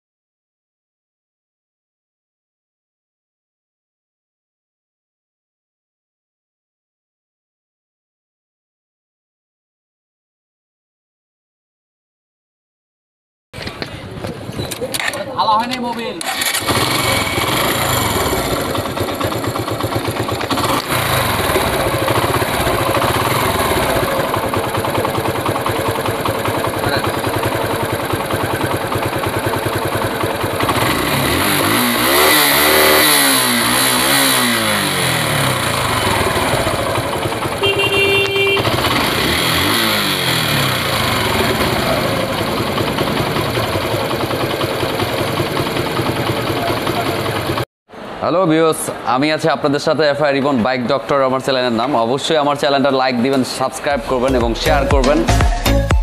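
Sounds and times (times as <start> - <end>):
motorcycle engine revving: 16.2 - 47.7.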